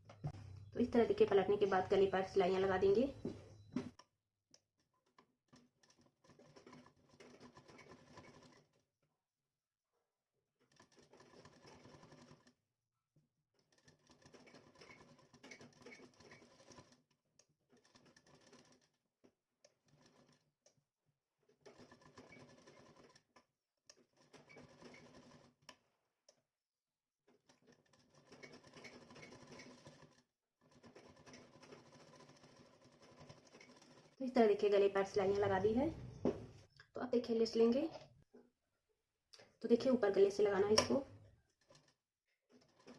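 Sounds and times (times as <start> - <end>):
faint sewing machine stitching: 5.1 - 8.8, 10.6 - 12.6, 13.6 - 19.0, 19.7 - 20.5, 21.4 - 25.8, 27.3 - 36.7, 39.7 - 42.9.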